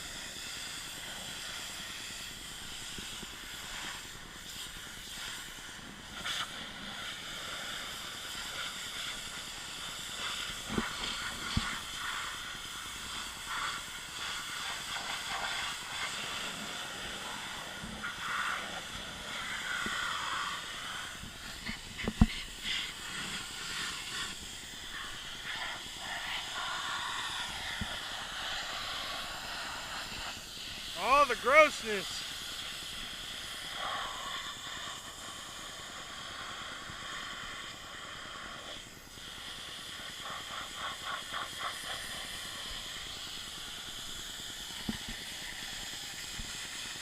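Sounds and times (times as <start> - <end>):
pressure washer spray hissing: 11.0 - 34.8.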